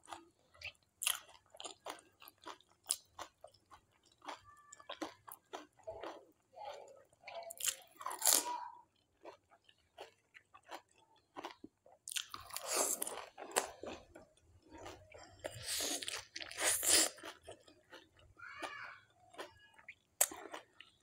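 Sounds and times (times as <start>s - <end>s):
chewing and crunching crisp shells: 0.0s - 21.0s.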